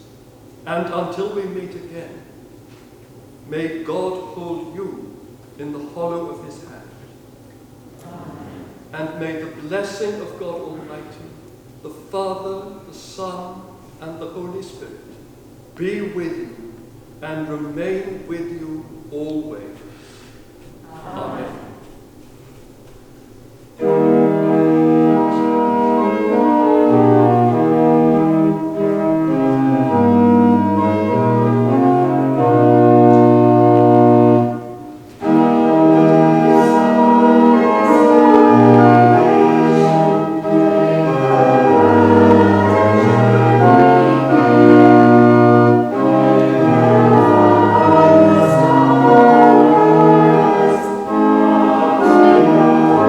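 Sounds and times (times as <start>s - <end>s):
church organ playing chords: 12.0s - 20.2s, 21.2s - 53.0s.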